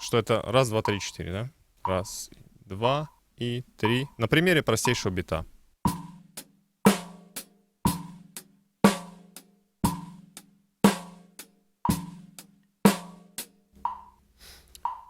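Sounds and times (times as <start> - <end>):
drum kit playing a simple beat: 0.8 - 1.2, 2.9 - 15.0
metronome click: 0.8 - 1.2, 3.8 - 5.1, 13.8 - 15.0.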